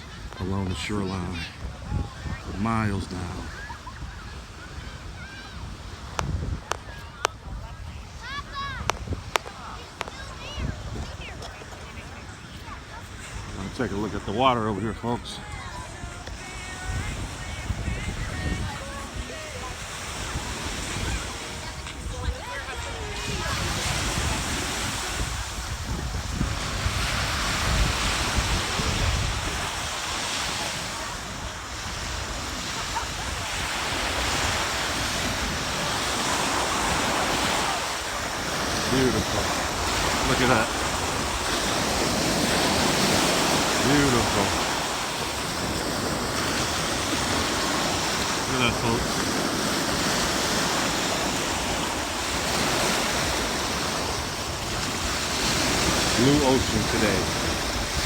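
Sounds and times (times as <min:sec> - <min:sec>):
ocean surf washing onto beach: 0:00.0 - 0:58.0
wind buffeting microphone: 0:00.0 - 0:58.0.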